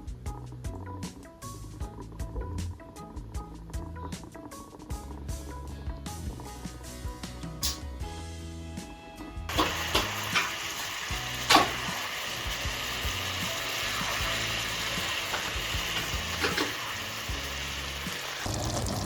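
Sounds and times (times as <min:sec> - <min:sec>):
soft background music: 0:00.0 - 0:18.7
steady sizzling hiss: 0:09.5 - 0:18.6.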